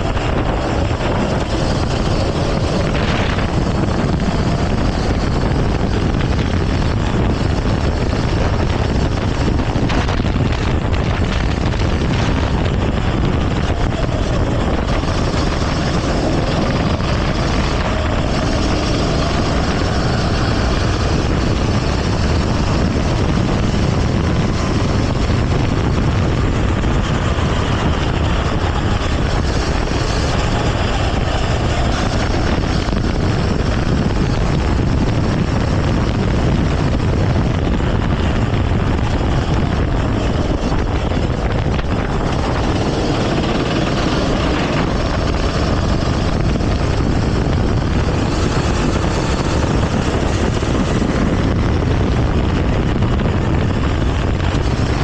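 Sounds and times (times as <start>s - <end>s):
go-kart engine running: 0.0s - 55.0s
wind and road noise: 0.0s - 55.0s.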